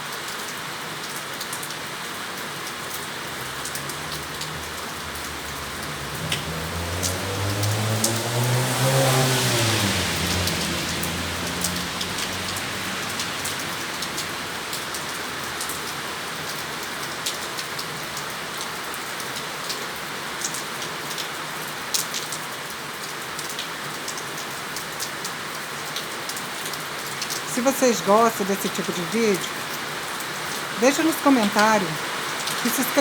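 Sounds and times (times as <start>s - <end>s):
heavy rain falling: 0.0s - 33.0s
raindrops ticking: 0.0s - 33.0s
low engine hum: 3.2s - 14.8s.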